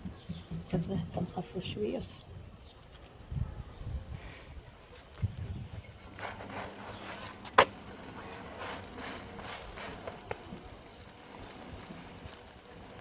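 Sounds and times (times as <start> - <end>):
charcoal fire crackling: 4.9 - 13.0
flatbreads frying on a pan: 5.4 - 13.0.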